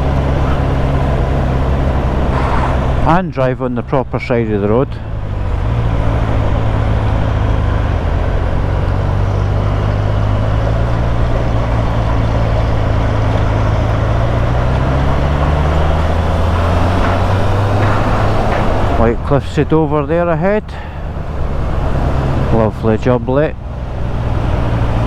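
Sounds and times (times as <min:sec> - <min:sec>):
motorcycle engine running: 0:00.0 - 0:03.3, 0:05.0 - 0:19.4.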